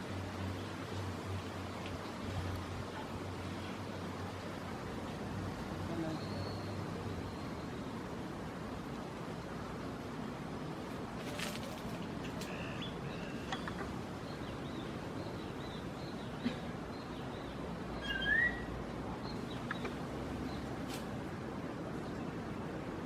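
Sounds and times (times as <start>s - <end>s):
steady background noise: 0.0s - 23.0s
birds chirping and whistling: 18.0s - 18.7s.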